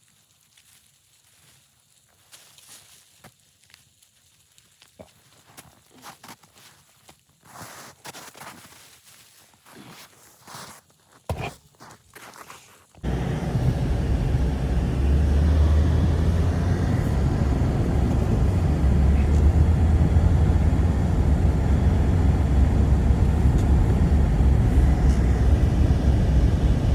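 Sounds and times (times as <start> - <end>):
blizzard wind blowing: 13.0 - 26.9.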